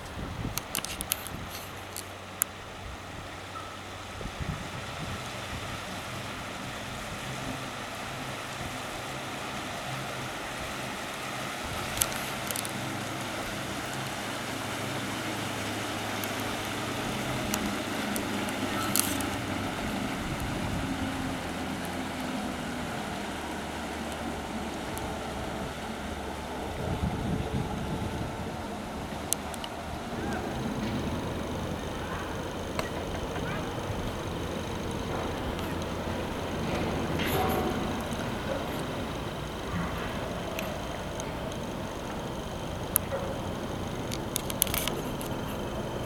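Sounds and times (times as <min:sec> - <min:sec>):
boat engine running: 0:00.0 - 0:46.0
wind and water rushing: 0:00.0 - 0:46.0
sharp clicks: 0:00.6 - 0:02.5, 0:29.5 - 0:46.0.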